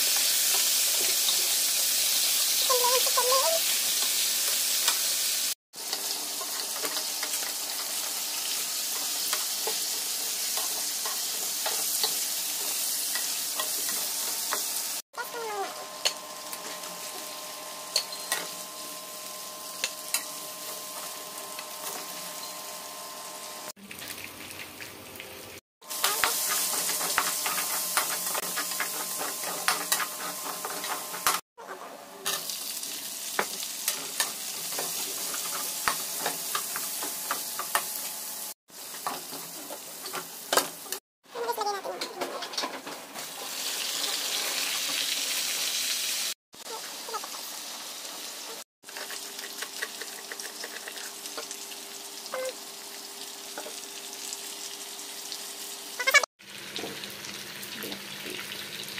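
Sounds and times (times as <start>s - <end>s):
oil sizzling in a pan: 0.0s - 31.4s, 32.2s - 41.6s, 42.8s - 58.9s
metal spatula scraping a pan: 25.9s - 32.4s.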